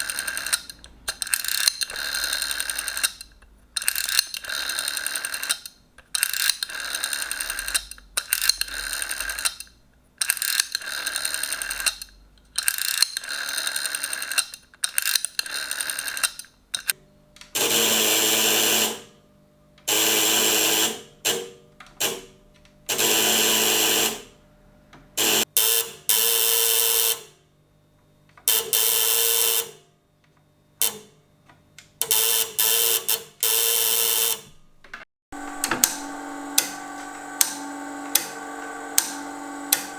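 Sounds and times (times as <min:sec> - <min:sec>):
telephone bells ringing: 0:35.4 - 0:39.9.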